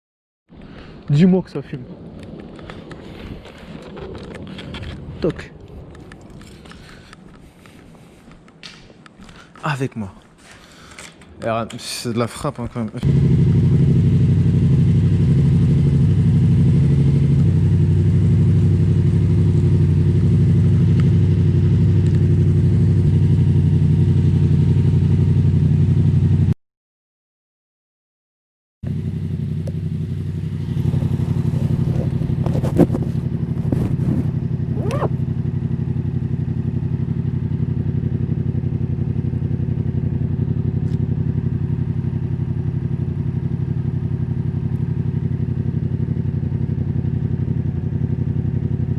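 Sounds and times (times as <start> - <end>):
motorcycle engine running: 13.0 - 26.5, 28.8 - 48.9.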